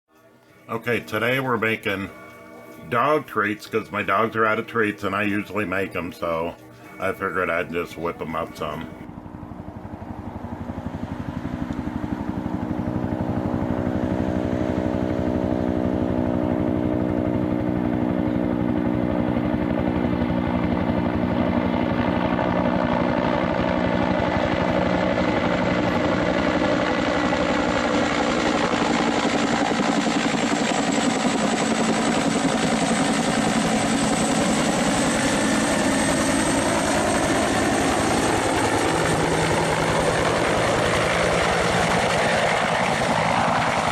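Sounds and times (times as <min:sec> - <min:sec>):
faint high whine: 0:00.1 - 0:21.0.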